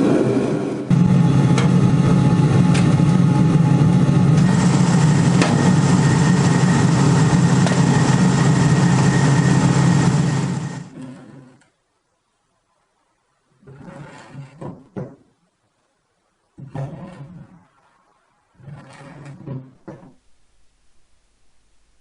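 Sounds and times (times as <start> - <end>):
high whine: 0.0 - 11.0
machine tool motor running: 0.9 - 11.0.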